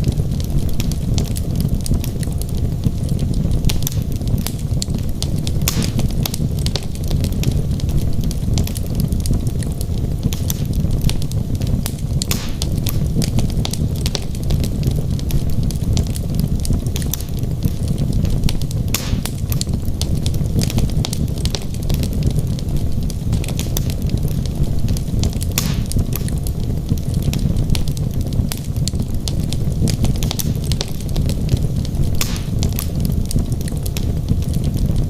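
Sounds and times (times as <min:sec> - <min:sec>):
fire rumbling: 0:00.0 - 0:35.0
logs crackling and popping: 0:00.0 - 0:35.0.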